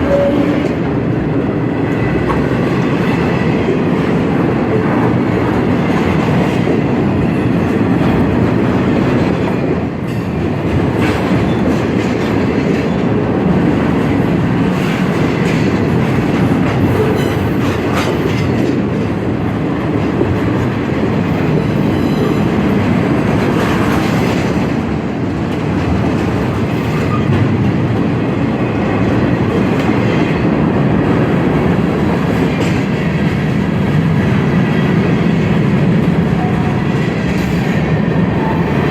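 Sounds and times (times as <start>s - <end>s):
freight train rolling past: 0.0s - 38.9s.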